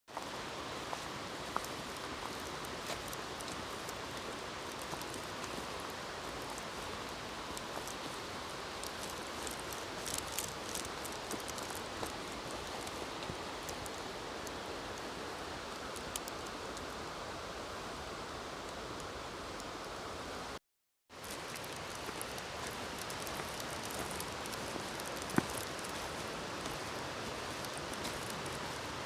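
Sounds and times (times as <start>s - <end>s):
steady fire hiss: 0.2s - 20.6s, 21.2s - 29.0s
campfire crackling and popping: 2.4s - 14.6s, 21.3s - 28.9s.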